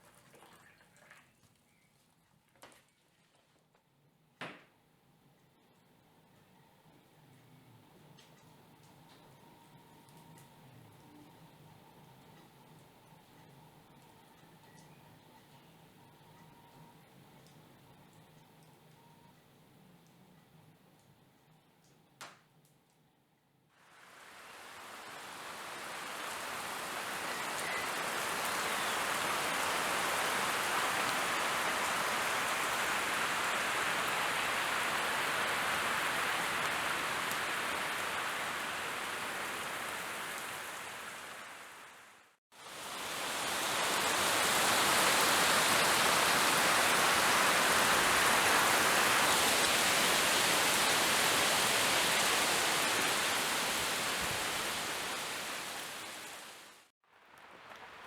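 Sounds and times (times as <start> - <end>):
steady rain falling: 23.8 - 58.0.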